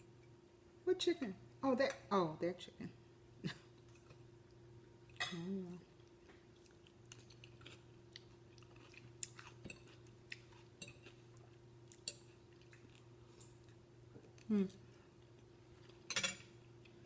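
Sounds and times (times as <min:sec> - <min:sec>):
quiet chewing: 0:03.7 - 0:16.1.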